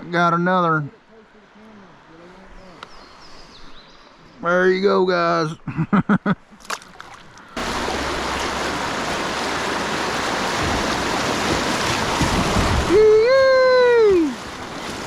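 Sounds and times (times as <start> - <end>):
river water rushing: 7.1 - 15.0.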